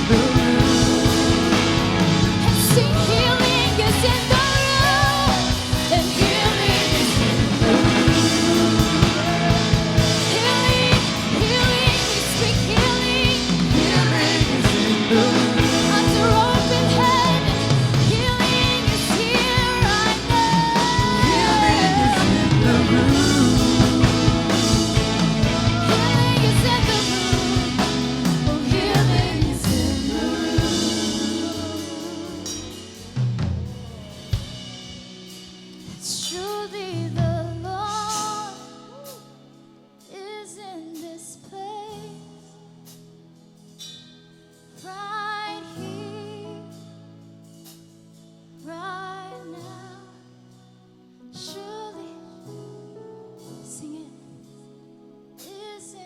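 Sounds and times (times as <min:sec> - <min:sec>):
singing: 0:00.0 - 0:33.1
drum kit: 0:00.0 - 0:39.4
worship song with band: 0:00.0 - 0:56.0.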